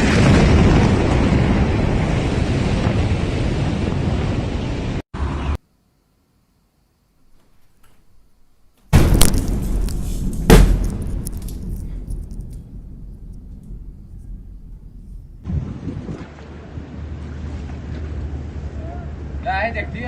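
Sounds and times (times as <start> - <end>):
fireworks exploding with crackling pops: 8.9 - 15.5
loud bang: 8.9 - 15.5
deep rumble: 9.0 - 17.2.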